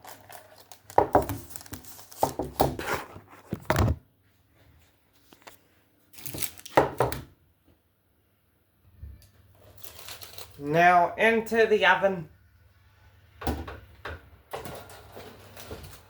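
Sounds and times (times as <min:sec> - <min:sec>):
crinkling rustles: 0:00.0 - 0:04.0, 0:04.7 - 0:07.0, 0:09.5 - 0:10.7.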